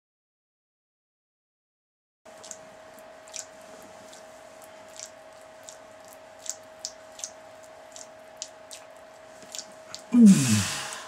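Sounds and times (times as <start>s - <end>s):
wet squishing of skin: 2.3s - 10.1s
constant hum: 2.3s - 11.0s.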